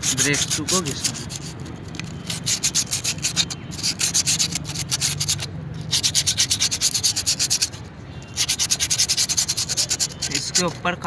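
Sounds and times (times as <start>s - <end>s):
sandpaper rubbing brake lining: 0.0s - 11.0s.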